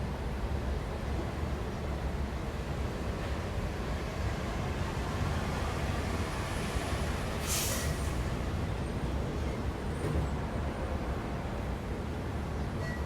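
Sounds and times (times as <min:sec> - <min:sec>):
street traffic rumble: 0:00.0 - 0:13.0
short hiss: 0:07.4 - 0:08.1.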